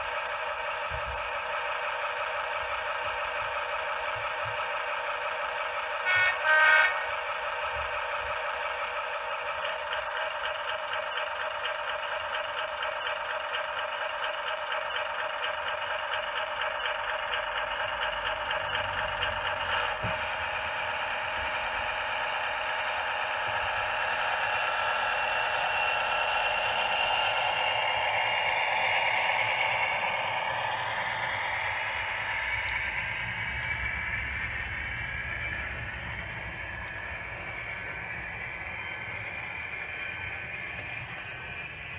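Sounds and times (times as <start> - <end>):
model locomotive engine sound: 0.0 - 41.9.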